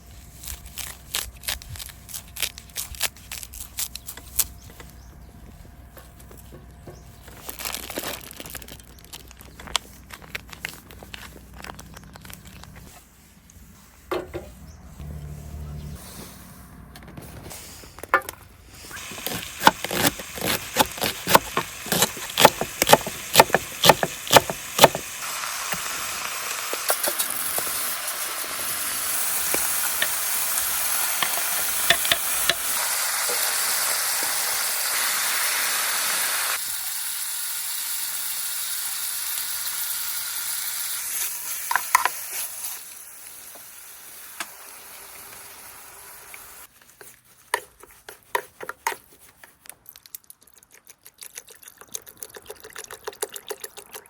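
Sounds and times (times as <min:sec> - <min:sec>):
food sizzling in a pan: 0:25.0 - 0:46.7
cooking utensil clicking and scraping: 0:47.5 - 0:49.6.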